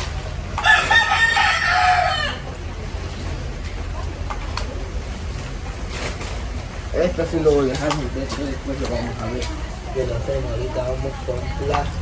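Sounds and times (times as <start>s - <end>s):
rooster crowing: 0.6s - 2.5s.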